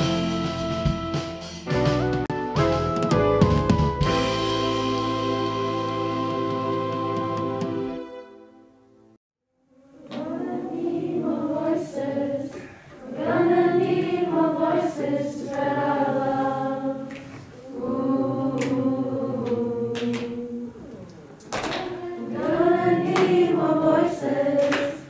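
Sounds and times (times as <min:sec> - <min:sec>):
choir singing: 0:09.8 - 0:25.0.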